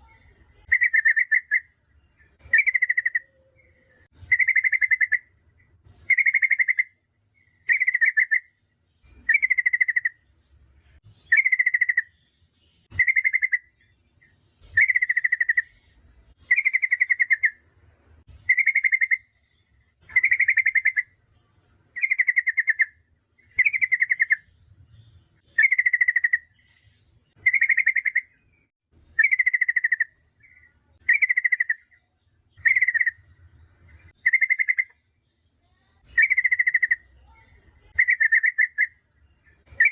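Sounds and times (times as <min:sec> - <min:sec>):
bird chattering call: 0:00.0 - 0:01.8, 0:02.4 - 0:05.3, 0:06.0 - 0:07.0, 0:09.2 - 0:10.2, 0:11.3 - 0:12.2, 0:12.9 - 0:13.8, 0:14.7 - 0:15.8, 0:18.4 - 0:19.3, 0:20.0 - 0:21.2, 0:22.0 - 0:24.5, 0:25.5 - 0:26.8, 0:27.4 - 0:28.4, 0:29.1 - 0:32.0, 0:32.6 - 0:33.3, 0:33.9 - 0:35.0, 0:35.8 - 0:39.0, 0:39.6 - 0:39.9.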